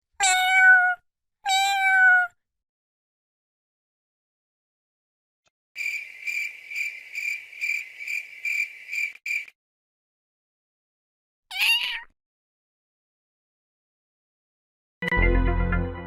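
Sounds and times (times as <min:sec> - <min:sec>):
cat meow: 0:00.2 - 0:02.4, 0:11.5 - 0:12.2.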